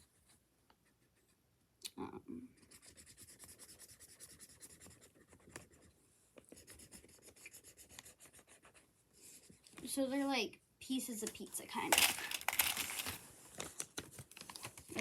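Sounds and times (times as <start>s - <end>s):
pencil scratching on paper: 2.5s - 9.6s.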